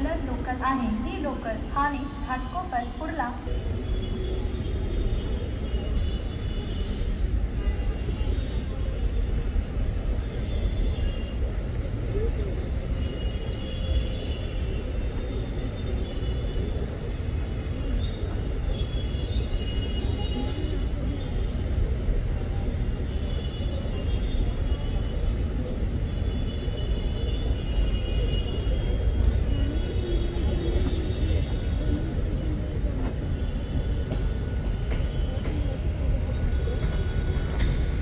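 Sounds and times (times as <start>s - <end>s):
faint voices: 0.0s - 38.0s
train rumbling: 28.5s - 38.0s.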